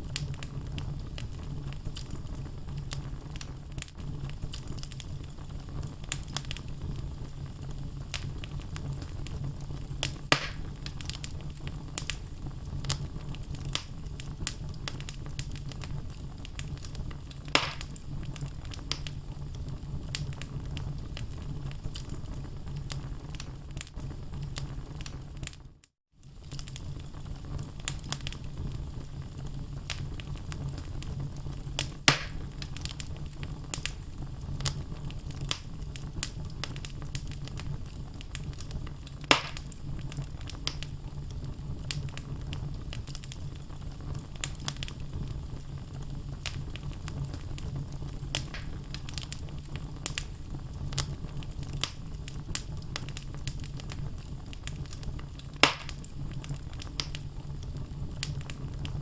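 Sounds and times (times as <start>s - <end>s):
loud fire pops: 0.0s - 25.6s, 26.2s - 59.0s
low rumble of flames: 0.0s - 59.0s
logs crackling: 10.0s - 21.3s, 29.9s - 43.4s, 46.4s - 59.0s.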